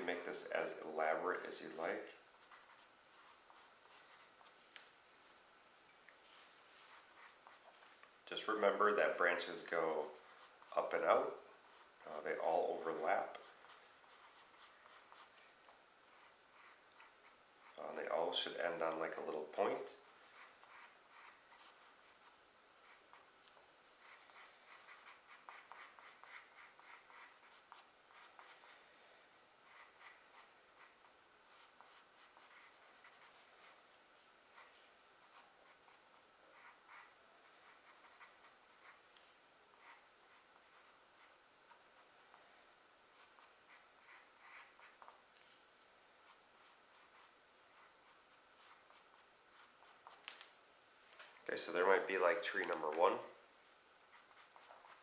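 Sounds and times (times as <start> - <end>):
charcoal pencil scratching on paper: 1.3 - 4.6, 6.9 - 7.8, 8.6 - 15.5, 16.1 - 17.9, 19.6 - 23.3, 24.0 - 28.8, 29.6 - 33.8, 34.5 - 39.0, 39.8 - 42.4, 43.1 - 45.2, 46.2 - 50.2, 54.1 - 55.0.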